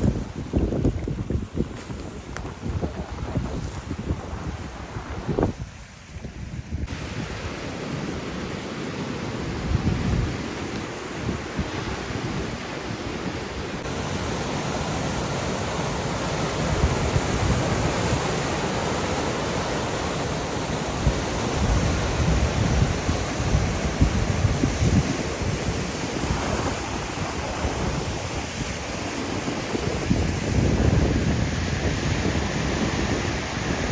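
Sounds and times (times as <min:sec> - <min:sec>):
wind buffeting microphone: 0:00.0 - 0:08.4, 0:09.2 - 0:33.9.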